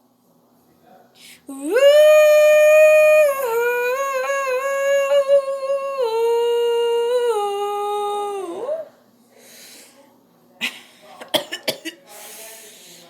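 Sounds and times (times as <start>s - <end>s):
faint breath: 9.3s - 10.2s, 12.0s - 13.0s.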